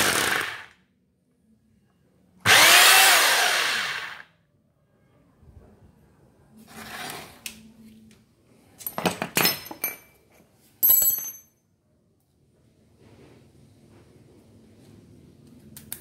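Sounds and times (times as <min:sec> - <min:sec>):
metal objects clinking: 0:08.9 - 0:10.2, 0:10.8 - 0:11.5.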